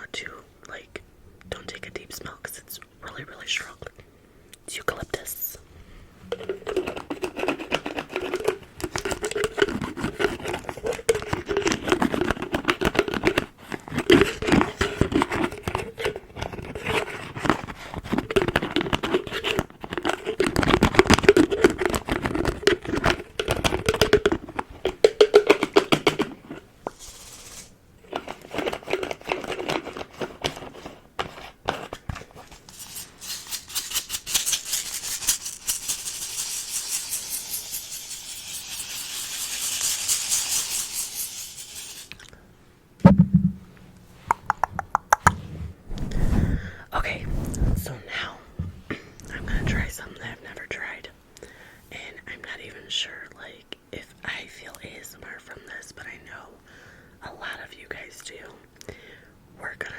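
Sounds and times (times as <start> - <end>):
container lid tapped and scratched: 6.2 - 42.2, 44.3 - 45.4
hissy rubbing: 26.9 - 27.8, 45.1 - 48.1.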